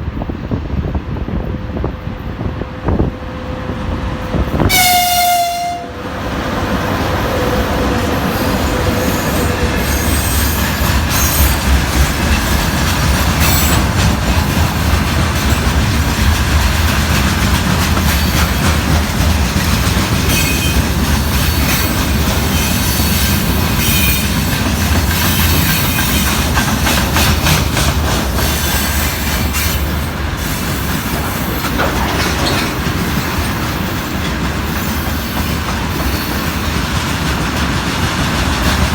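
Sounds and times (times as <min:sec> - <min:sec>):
train horn blast: 0:04.5 - 0:06.3
wagon wheels clattering over rails: 0:31.0 - 0:38.9.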